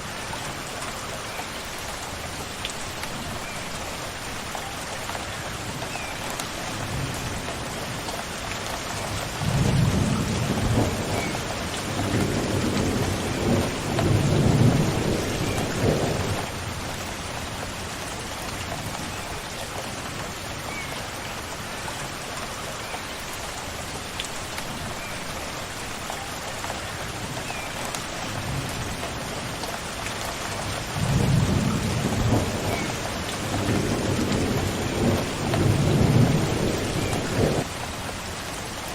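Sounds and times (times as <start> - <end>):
steady rain falling: 0.0 - 38.9
thunder rumbling: 9.4 - 16.6, 31.0 - 37.7.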